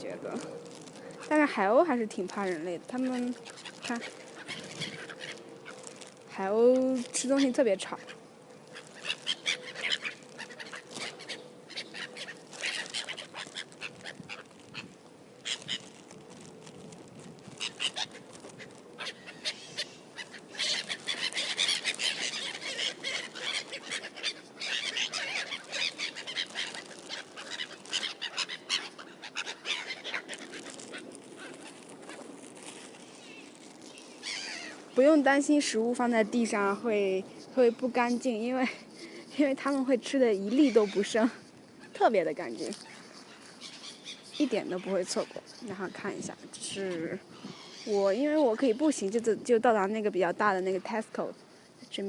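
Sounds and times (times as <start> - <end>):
gulls squawking: 2.3 - 6.1, 7.1 - 16.1, 17.4 - 34.9.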